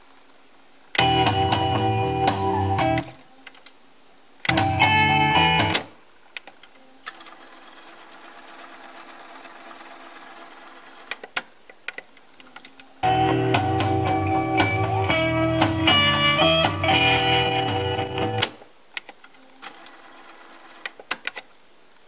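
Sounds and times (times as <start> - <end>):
loud guitar music: 1.0 - 3.2, 4.5 - 5.8, 13.0 - 18.5.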